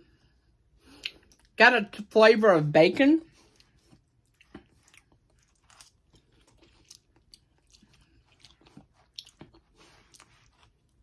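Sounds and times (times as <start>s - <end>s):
person chewing: 0.8s - 1.6s, 3.3s - 11.0s.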